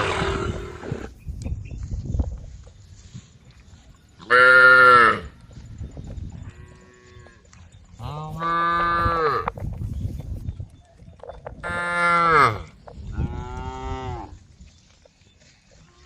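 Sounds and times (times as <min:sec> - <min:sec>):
cows mooing: 0:00.0 - 0:01.1, 0:11.6 - 0:14.4.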